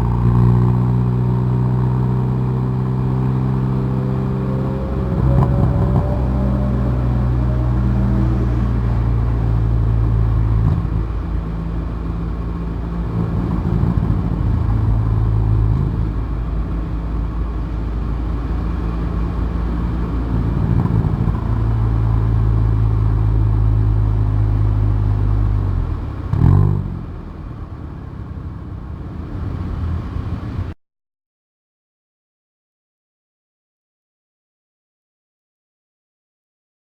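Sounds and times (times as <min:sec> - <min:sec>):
car engine and exhaust: 0:00.0 - 0:30.8.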